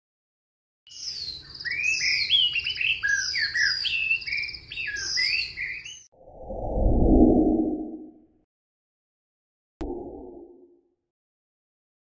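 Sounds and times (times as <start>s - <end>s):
songbirds chirping and whistling: 0.9s - 6.1s.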